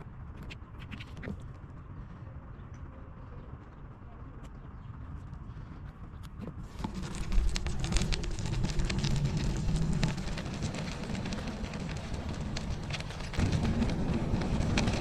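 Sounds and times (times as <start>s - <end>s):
wind rumble on microphone: 0.0s - 15.0s
bicycle tyres crunching over snow: 6.6s - 15.0s.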